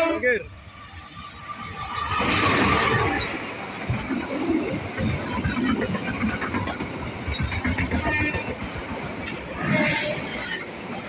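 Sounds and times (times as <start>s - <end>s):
diesel train passing: 0.0s - 11.0s
wheels knocking on rails: 2.3s - 9.5s.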